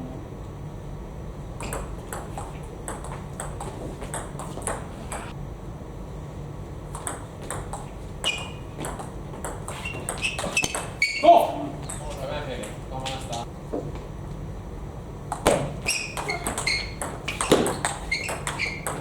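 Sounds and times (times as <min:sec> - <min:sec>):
table tennis ball clicking: 0:01.6 - 0:05.4, 0:07.0 - 0:11.0, 0:15.3 - 0:19.0
short squeak: 0:08.2 - 0:08.6, 0:09.7 - 0:11.4, 0:15.8 - 0:19.0.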